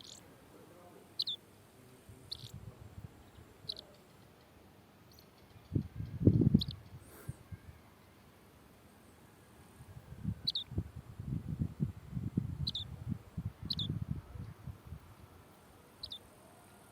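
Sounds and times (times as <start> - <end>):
small bird chirping: 0.0 - 0.3, 1.1 - 1.4, 2.2 - 2.6, 3.2 - 8.3, 10.3 - 10.8, 12.6 - 15.0, 15.9 - 16.9.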